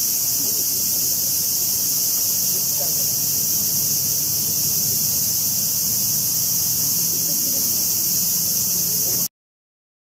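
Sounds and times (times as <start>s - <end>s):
insects buzzing: 0.0s - 9.3s.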